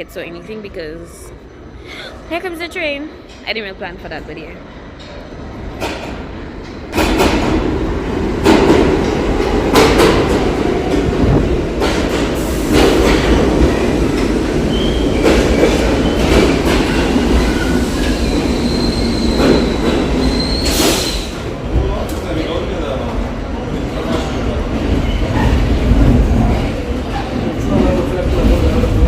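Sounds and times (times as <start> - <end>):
subway train wheels clacking: 1.6 - 29.0
high wheel squeal: 18.6 - 21.3.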